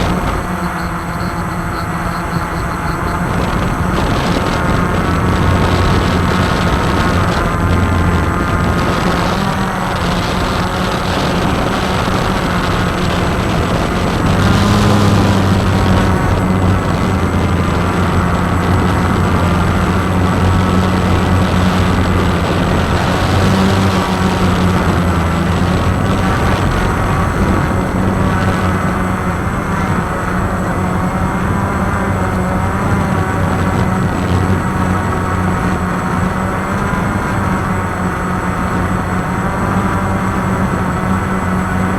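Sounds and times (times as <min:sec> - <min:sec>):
quadcopter propellers buzzing: 0:00.0 - 0:41.9.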